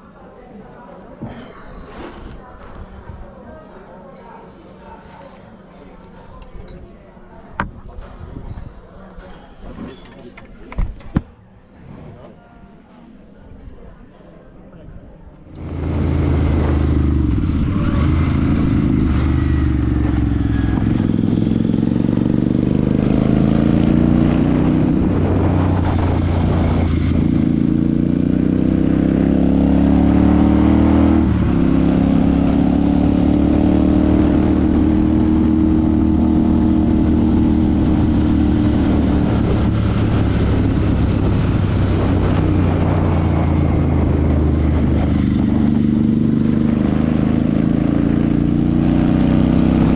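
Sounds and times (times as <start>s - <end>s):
motorcycle engine accelerating: 15.6s - 49.9s.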